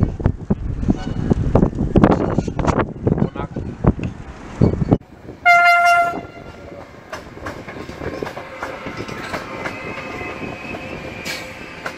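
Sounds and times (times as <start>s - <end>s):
train rumble: 0.0s - 11.9s
train horn blast: 5.4s - 6.6s
wheels clacking over rail joints: 5.6s - 11.9s.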